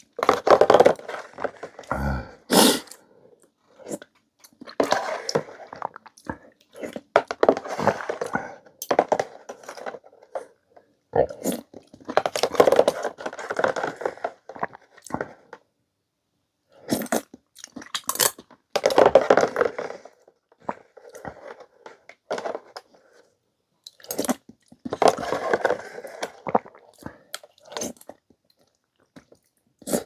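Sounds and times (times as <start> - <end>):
person chewing: 1.8 - 3.0.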